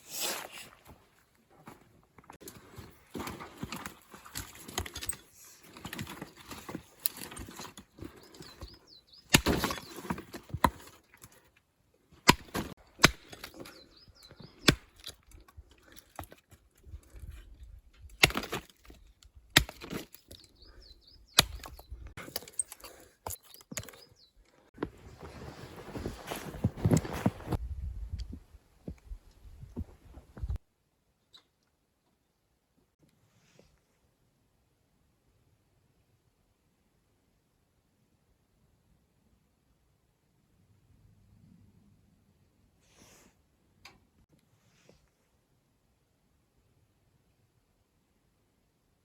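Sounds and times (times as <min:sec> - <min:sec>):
rustling and shuffling: 0:24.6 - 0:30.6.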